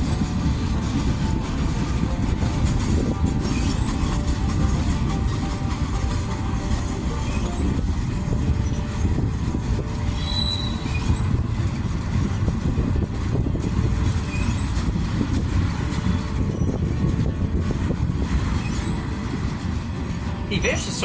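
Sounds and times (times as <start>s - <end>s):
freight train rumbling on rails: 0.0s - 21.0s
train clanks: 0.0s - 21.0s
faint wheel squeals: 10.1s - 11.4s, 14.2s - 14.8s.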